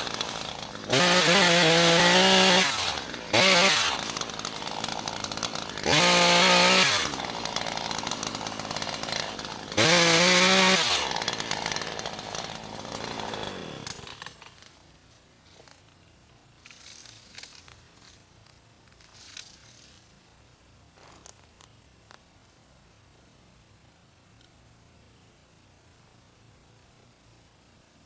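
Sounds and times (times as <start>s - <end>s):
chainsaw revving: 0.0s - 14.7s.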